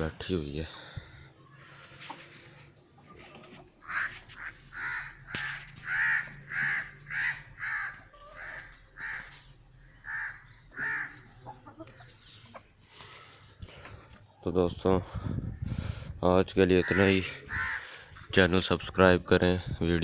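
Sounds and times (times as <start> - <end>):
crow cawing: 3.8 - 11.4, 16.8 - 18.2.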